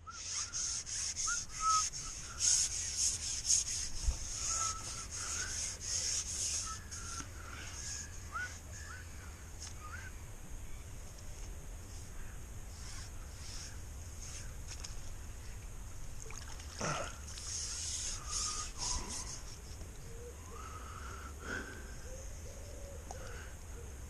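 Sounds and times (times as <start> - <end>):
whistled bird calls: 0.0 - 3.0, 4.4 - 10.9, 17.6 - 21.1
rhythmic rasping rubbing: 0.1 - 7.2.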